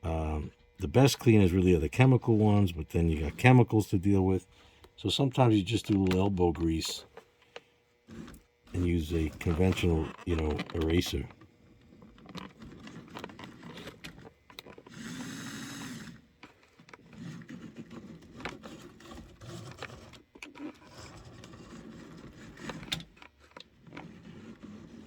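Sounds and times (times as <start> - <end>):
small electric motor running: 0.1 - 25.0
clicks and scrapes of handling: 0.6 - 25.0.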